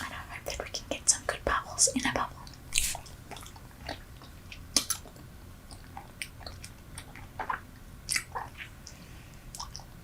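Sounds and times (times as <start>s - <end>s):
chewing gum wet smacks: 2.4s - 10.0s.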